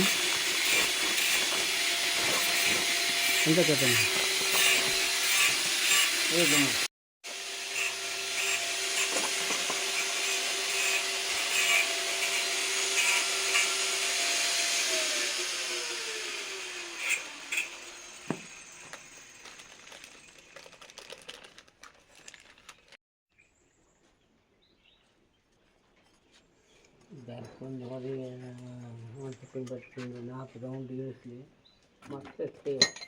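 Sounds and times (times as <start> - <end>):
motor winding down: 0.0 - 10.9
electric power tool whining: 0.0 - 20.5.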